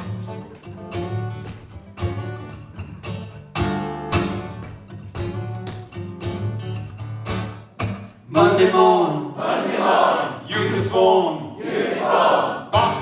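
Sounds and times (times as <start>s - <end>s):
acoustic guitar strumming: 0.0s - 8.9s, 12.7s - 13.0s.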